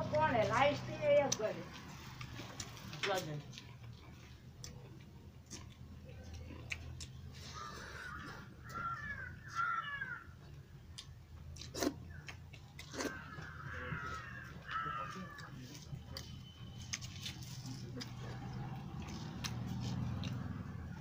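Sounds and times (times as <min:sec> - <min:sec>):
bird cawing: 0:07.4 - 0:10.4, 0:13.0 - 0:15.6.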